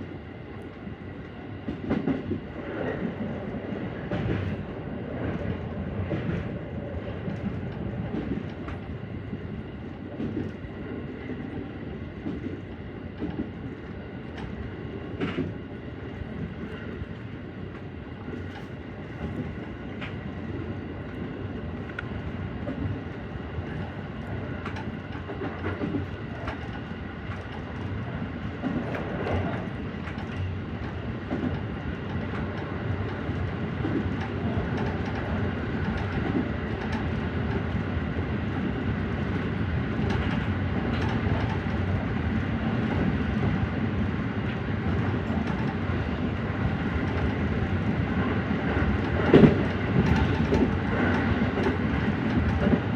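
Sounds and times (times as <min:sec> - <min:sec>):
train wheels rumbling on rail: 0:00.0 - 0:52.9
wheels clicking over rail joints: 0:48.7 - 0:52.9.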